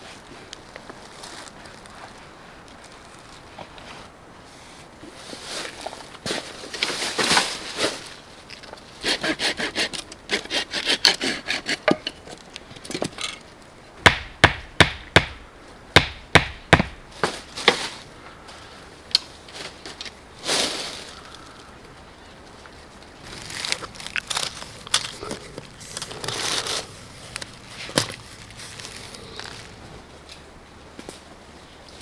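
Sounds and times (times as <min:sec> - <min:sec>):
saw strokes on wood: 0:09.0 - 0:11.9
wood rubbing scrapes: 0:09.0 - 0:12.0, 0:23.3 - 0:30.1
wood being struck: 0:14.0 - 0:17.8.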